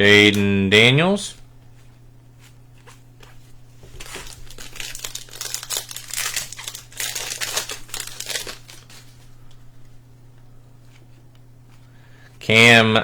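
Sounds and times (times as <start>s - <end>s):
plastic wrapper crinkling and tearing: 3.8s - 9.4s.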